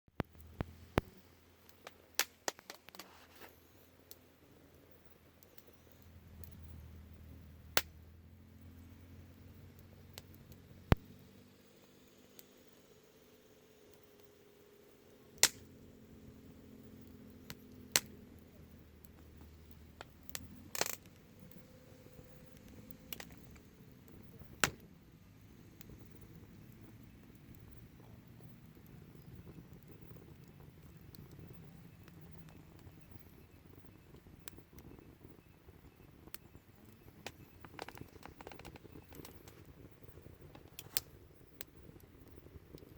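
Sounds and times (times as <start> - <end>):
wood fire crackling: 0.2 - 42.9
sharp clicks: 15.4 - 15.6, 36.3 - 39.7.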